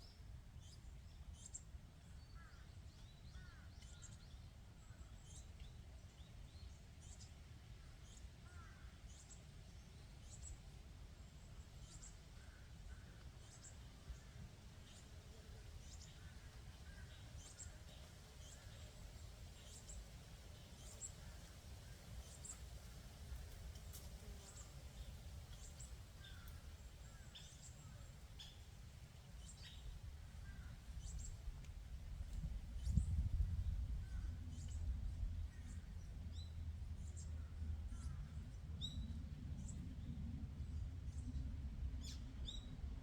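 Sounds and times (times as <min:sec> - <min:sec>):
wind rumble on microphone: 0:29.6 - 0:43.0.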